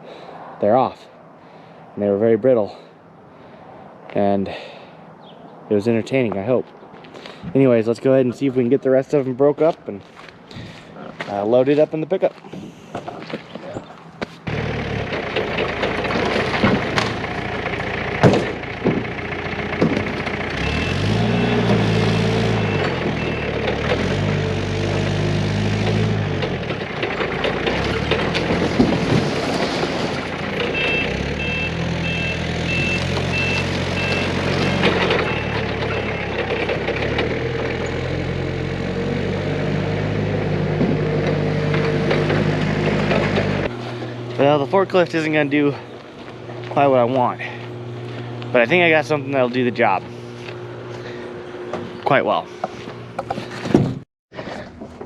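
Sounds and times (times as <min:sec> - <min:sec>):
forklift engine revving: 0:14.4 - 0:54.0
sharp knocks and cracks: 0:15.1 - 0:17.3, 0:18.2 - 0:19.1.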